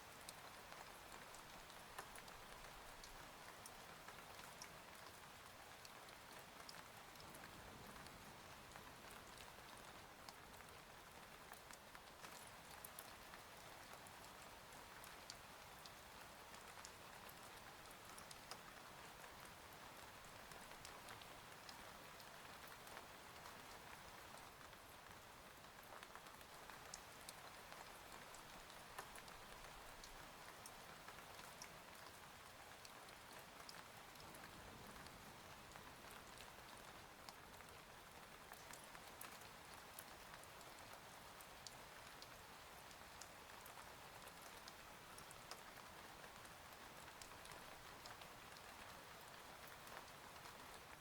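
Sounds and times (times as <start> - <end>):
faint steady rain: 0.0 - 51.0
raindrop ticks: 0.2 - 51.0.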